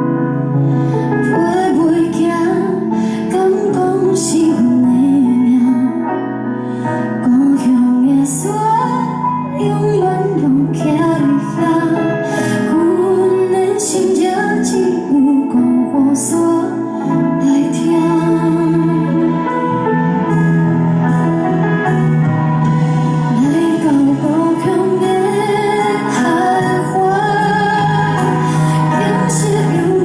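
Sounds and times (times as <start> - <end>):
woman singing: 1.0 - 19.7, 23.3 - 30.0
sustained instrumental chords: 16.3 - 30.0.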